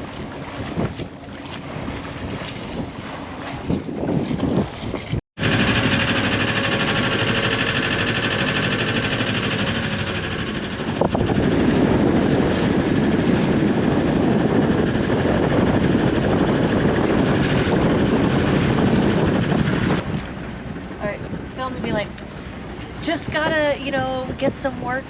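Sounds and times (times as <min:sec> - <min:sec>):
wind buffeting microphone: 0:00.0 - 0:25.0
engine-like drone: 0:05.4 - 0:25.0.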